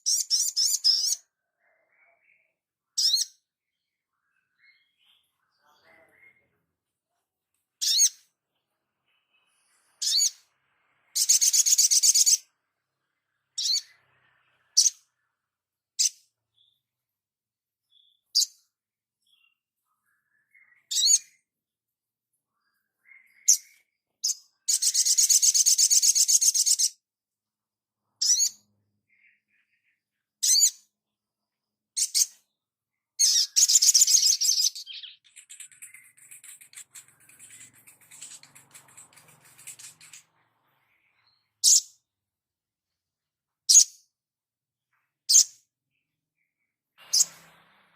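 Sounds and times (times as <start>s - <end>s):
bird rapid trill: 11.2s - 12.4s, 33.2s - 42.0s
songbird calling: 22.6s - 27.0s, 33.2s - 42.1s.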